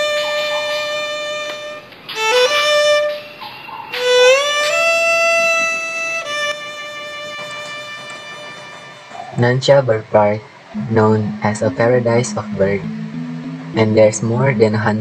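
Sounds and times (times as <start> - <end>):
solo violin long notes: 4.0 - 9.0, 10.8 - 15.0.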